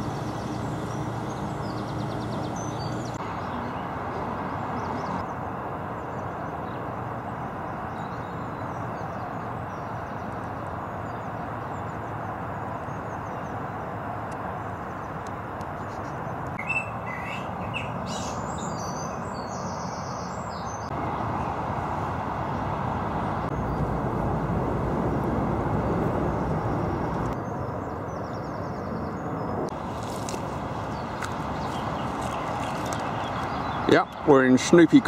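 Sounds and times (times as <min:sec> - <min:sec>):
small birds chirping: 0:00.0 - 0:21.8, 0:26.2 - 0:35.0
steady rushing noise: 0:20.9 - 0:28.2.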